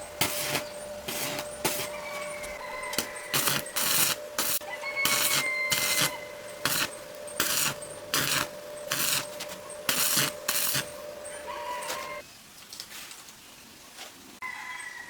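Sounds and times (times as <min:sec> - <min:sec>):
steady hum: 0:00.0 - 0:12.2
rough scraping strokes: 0:00.2 - 0:11.0.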